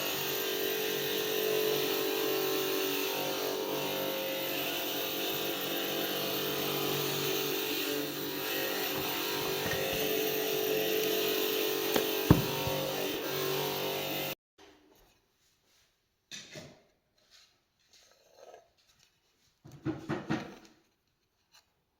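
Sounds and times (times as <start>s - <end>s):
electric glass grinder grinding: 0.0s - 14.4s.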